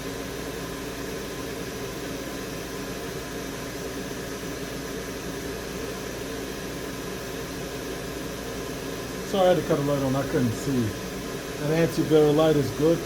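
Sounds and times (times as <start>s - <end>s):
fan-driven hiss: 0.0s - 13.0s.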